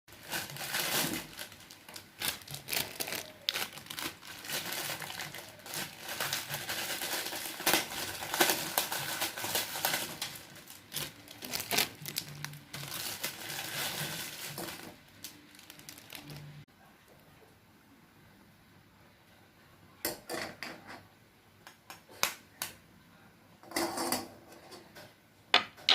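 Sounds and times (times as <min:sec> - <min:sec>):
plastic packaging crinkling: 0:00.1 - 0:16.6.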